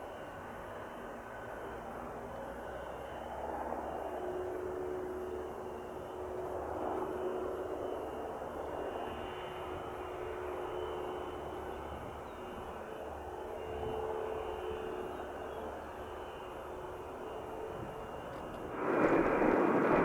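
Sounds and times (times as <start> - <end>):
airplane engine drone: 0.0 - 20.0.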